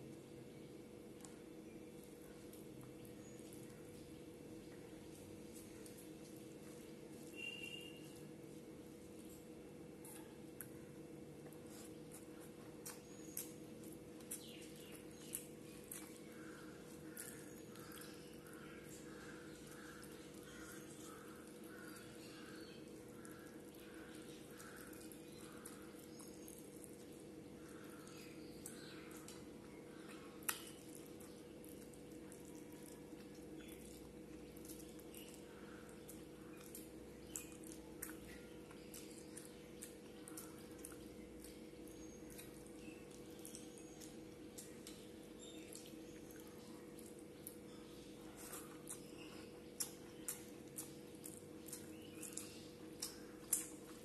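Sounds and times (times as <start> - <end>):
steady low hum: 0.0 - 54.0
wet chewing and lip smacks: 11.4 - 54.0.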